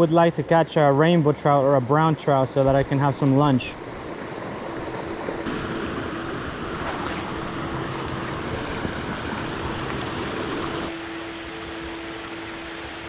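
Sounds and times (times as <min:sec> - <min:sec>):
creek water rushing into pool: 0:00.0 - 0:13.0
faint steady tone: 0:10.9 - 0:13.0.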